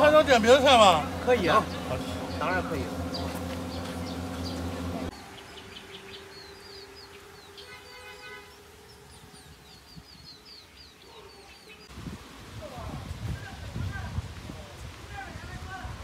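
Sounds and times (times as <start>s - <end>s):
steady low hum: 0.0s - 7.4s
small birds chirping: 0.0s - 12.0s.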